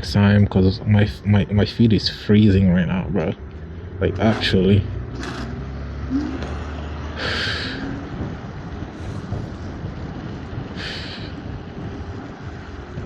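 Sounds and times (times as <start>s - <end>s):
road rumble: 0.0s - 13.0s
wind rush: 6.6s - 13.0s
short sharp breaths: 7.1s - 8.0s, 10.8s - 11.4s.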